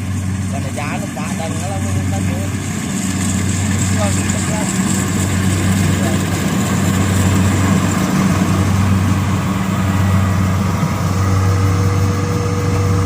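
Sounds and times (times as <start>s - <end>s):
harvester engine humming: 0.0s - 13.0s.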